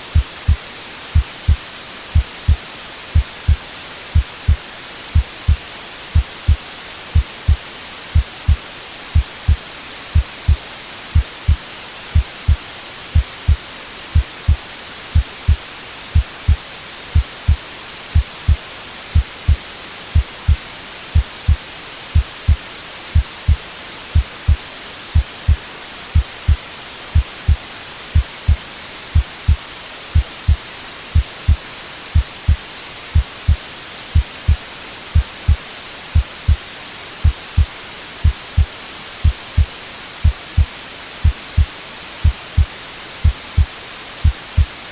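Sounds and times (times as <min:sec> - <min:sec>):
white noise hiss: 0:00.0 - 0:44.9
heartbeat thumps: 0:00.1 - 0:02.6, 0:03.2 - 0:04.6, 0:05.2 - 0:12.6, 0:13.2 - 0:16.6, 0:17.2 - 0:17.6, 0:18.2 - 0:19.6, 0:20.2 - 0:20.6, 0:21.2 - 0:21.6, 0:22.2 - 0:22.6, 0:23.2 - 0:23.6, 0:24.2 - 0:24.6, 0:25.2 - 0:25.6, 0:26.2 - 0:26.6, 0:27.2 - 0:27.6, 0:28.2 - 0:28.6, 0:29.2 - 0:29.6, 0:30.2 - 0:31.6, 0:32.2 - 0:32.6, 0:33.2 - 0:33.6, 0:34.2 - 0:34.6, 0:35.2 - 0:36.6, 0:37.2 - 0:44.7
heartbeat double thump: 0:15.2 - 0:15.6, 0:31.2 - 0:31.6.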